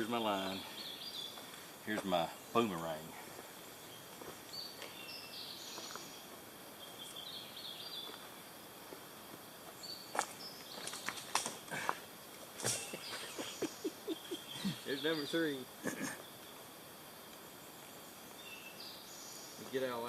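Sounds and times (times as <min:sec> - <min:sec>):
background hiss: 0:00.0 - 0:20.0
insects buzzing: 0:00.0 - 0:20.0
small ticks: 0:17.3 - 0:17.9.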